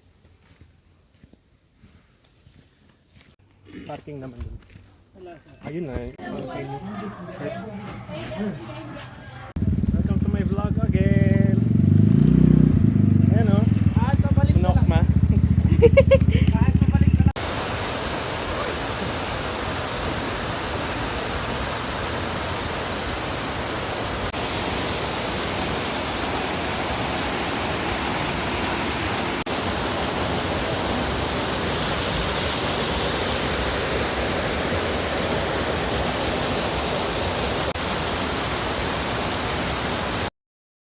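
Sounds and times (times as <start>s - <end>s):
waterfall roaring: 17.4s - 40.3s.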